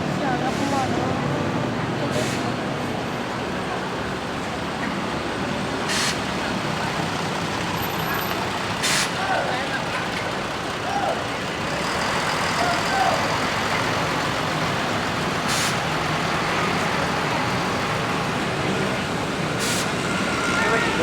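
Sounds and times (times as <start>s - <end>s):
bus diesel engine running: 0.0s - 21.0s
air brake hiss: 2.2s - 2.6s, 5.9s - 6.2s, 8.8s - 9.2s, 15.5s - 15.8s, 19.6s - 20.0s.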